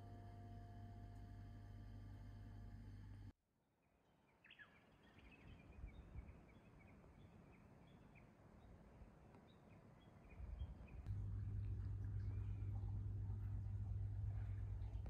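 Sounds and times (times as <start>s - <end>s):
faint birds chirping: 4.1s - 15.0s
low steady rumble: 10.2s - 15.0s.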